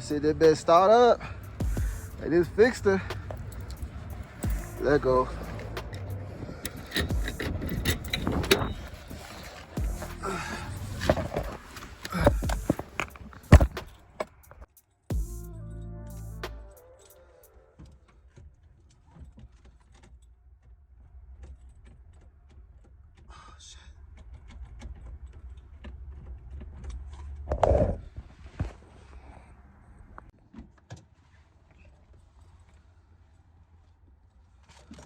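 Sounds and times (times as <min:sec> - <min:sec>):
light clicks and rattles: 0:00.0 - 0:14.9
car engine idling: 0:00.0 - 0:16.8.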